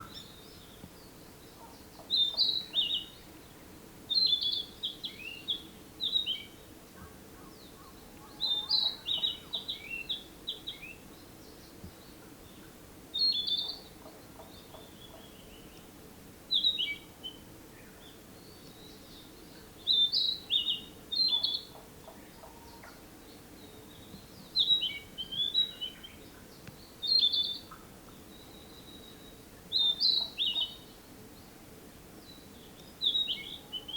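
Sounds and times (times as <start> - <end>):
bird singing whistled notes: 2.1 - 3.2, 4.1 - 6.6, 8.2 - 12.1, 13.2 - 13.9, 16.5 - 31.0, 32.2 - 33.9.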